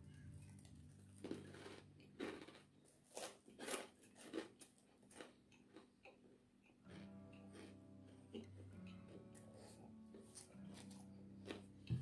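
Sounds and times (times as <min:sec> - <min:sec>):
background music: 0:00.0 - 0:03.3, 0:06.8 - 0:12.0
person chewing: 0:00.4 - 0:12.0.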